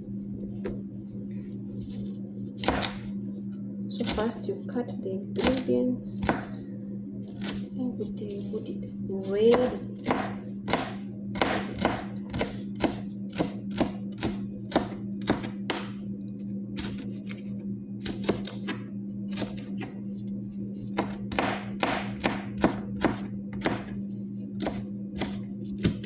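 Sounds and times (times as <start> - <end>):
steady low hum: 0.0 - 26.0
knife chopping on cutting board: 2.6 - 3.0, 9.5 - 16.0, 20.9 - 26.0.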